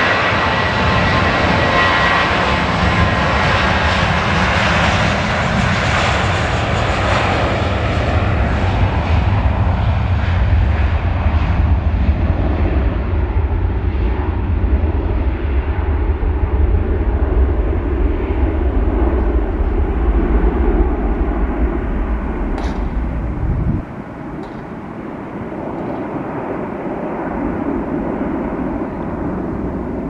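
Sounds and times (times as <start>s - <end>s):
jet engine rush: 0.0s - 30.0s
heavy low rumble: 13.4s - 30.0s.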